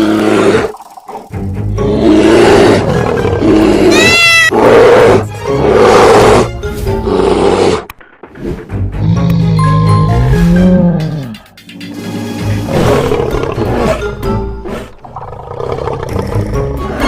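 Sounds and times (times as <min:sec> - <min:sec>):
background music: 0:00.0 - 0:17.0
lion roaring: 0:01.8 - 0:07.9.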